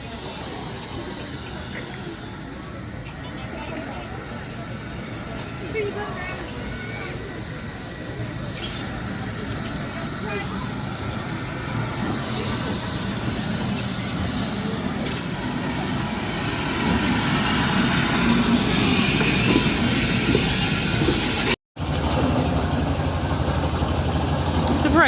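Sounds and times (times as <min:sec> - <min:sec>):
vehicle engines running: 0:00.0 - 0:25.0
short clinks: 0:06.0 - 0:06.8, 0:08.4 - 0:10.1, 0:13.6 - 0:15.4, 0:16.4 - 0:16.8.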